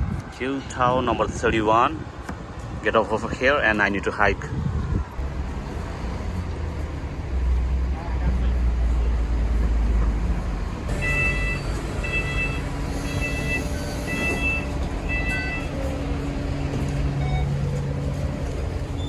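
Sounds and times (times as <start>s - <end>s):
diesel bus engine rumbling: 0.0s - 19.0s
electronic beeps: 10.9s - 15.8s, 17.2s - 17.6s.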